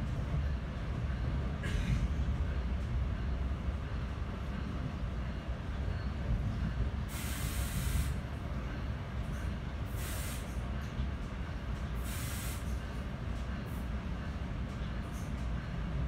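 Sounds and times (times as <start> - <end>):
train car rumbling on rails: 0.0 - 16.0
air hissing bursts: 7.1 - 8.2, 9.9 - 10.6, 12.0 - 12.8.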